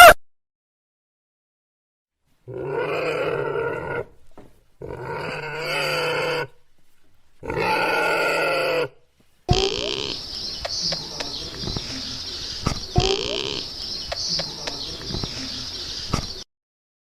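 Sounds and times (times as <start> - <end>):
animal calling: 4.8 - 6.6, 7.4 - 16.4.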